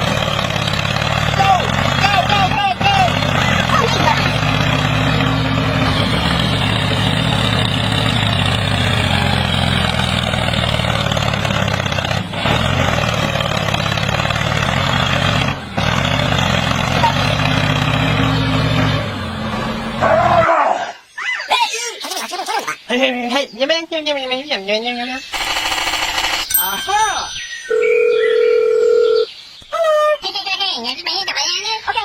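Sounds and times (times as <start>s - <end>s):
vehicle engine running: 0.0s - 20.2s.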